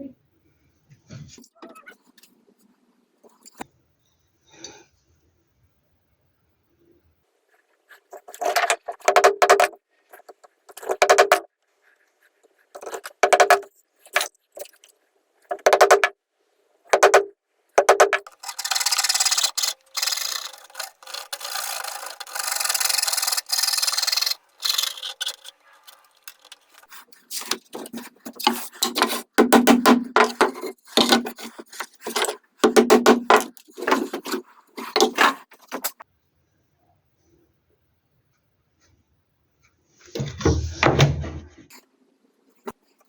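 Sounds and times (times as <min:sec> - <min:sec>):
hand tool rasping wood: 0:18.2 - 0:35.5.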